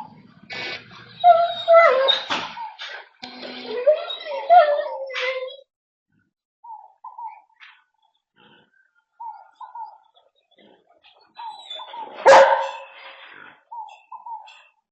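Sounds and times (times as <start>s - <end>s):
dog barking and yelping: 1.0s - 3.1s, 3.7s - 5.6s, 9.2s - 10.1s, 11.2s - 14.7s.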